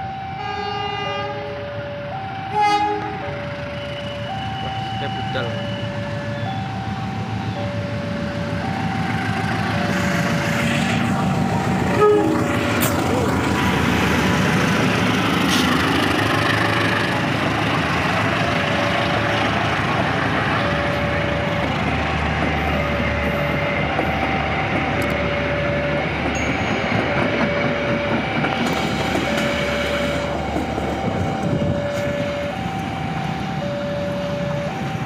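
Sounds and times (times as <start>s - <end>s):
two-tone electronic warning signal: 0.0s - 12.8s, 29.2s - 35.0s
train rumbling past: 0.0s - 35.0s.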